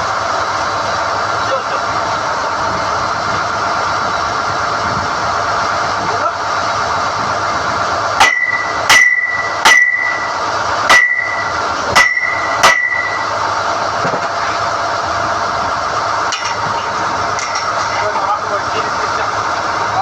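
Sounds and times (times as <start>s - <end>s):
drill rig running: 0.0s - 20.0s
hammer striking steel rod: 8.2s - 10.3s, 10.9s - 13.2s.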